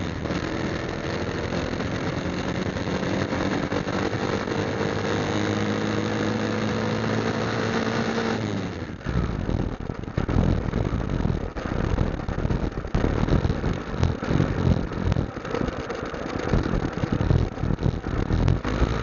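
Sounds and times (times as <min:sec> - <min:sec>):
motorcycle engine running: 0:00.0 - 0:19.0
uneven low rumble: 0:09.0 - 0:19.0.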